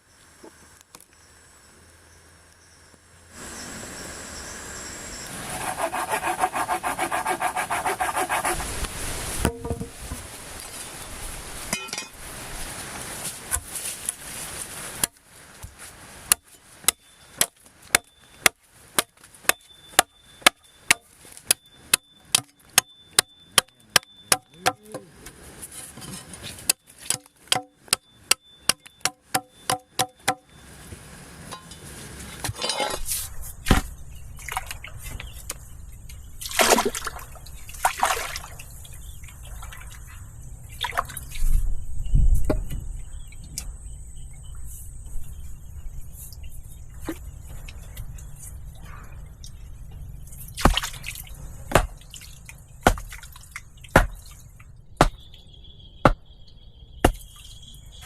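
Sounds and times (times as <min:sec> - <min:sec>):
rushing noise with swishes: 0:05.3 - 0:15.0.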